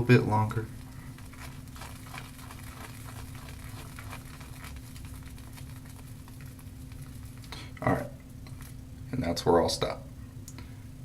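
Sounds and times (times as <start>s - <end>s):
shaving brush swirling on soap: 0.3s - 7.5s.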